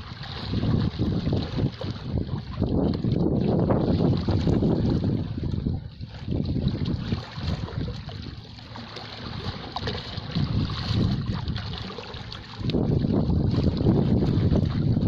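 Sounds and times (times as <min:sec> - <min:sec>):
sea waves washing on shore: 0:00.0 - 0:15.0
wind buffeting microphone: 0:00.0 - 0:15.0.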